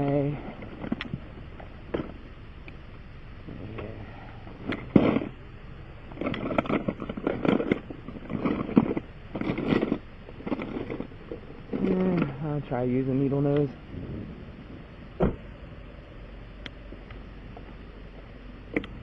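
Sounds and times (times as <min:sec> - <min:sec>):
hand tools clinking and scraping: 0:06.1 - 0:12.4.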